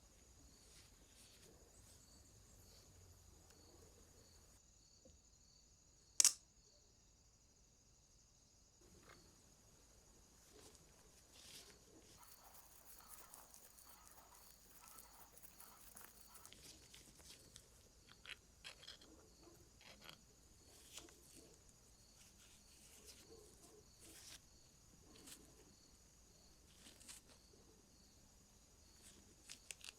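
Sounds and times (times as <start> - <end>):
sharp click: 6.2 - 6.4
light scraping and rustling: 26.6 - 27.5.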